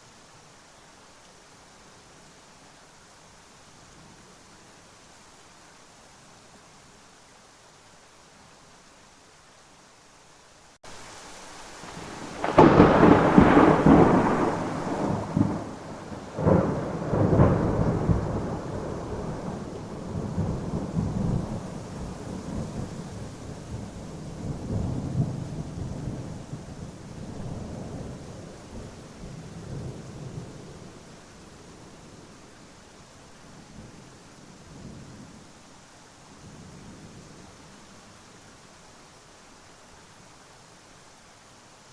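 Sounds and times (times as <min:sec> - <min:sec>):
steady rain: 0:00.0 - 0:41.9
thunder cracking and rumbling: 0:12.0 - 0:30.6.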